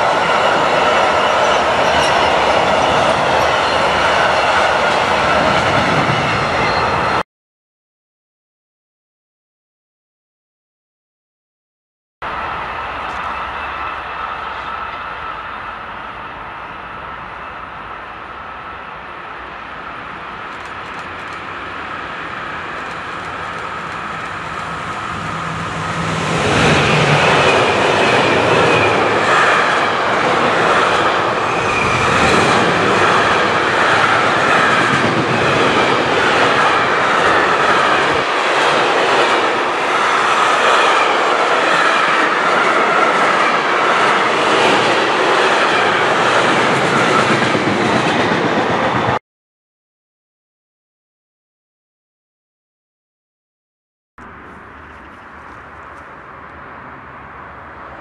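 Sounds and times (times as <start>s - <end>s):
wheels clickety-clack over rail joints: 0.0s - 7.1s, 20.3s - 49.2s
train passing close by: 0.0s - 7.2s, 12.2s - 49.2s, 54.2s - 58.0s.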